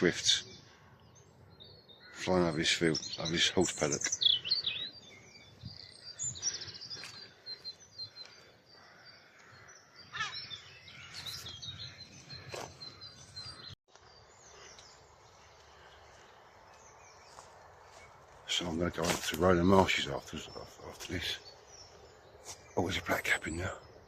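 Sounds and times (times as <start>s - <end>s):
songbirds singing and chirping: 0.0s - 24.0s.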